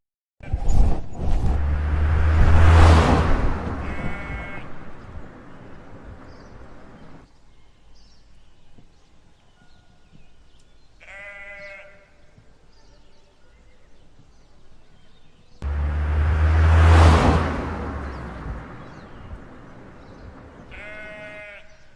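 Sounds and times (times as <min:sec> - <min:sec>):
rushing noise: 0:00.5 - 0:07.2, 0:15.6 - 0:20.8
sheep bleating: 0:03.8 - 0:04.7, 0:11.0 - 0:12.1, 0:20.7 - 0:21.8.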